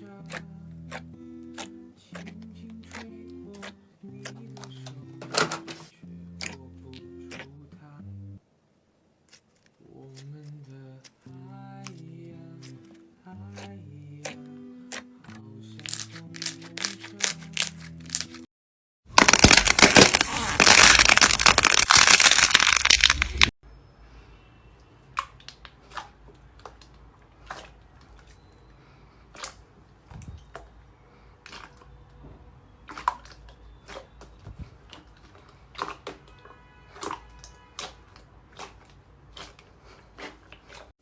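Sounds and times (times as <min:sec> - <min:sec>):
slime crackling when squeezed: 0:15.8 - 0:18.4, 0:19.2 - 0:23.5.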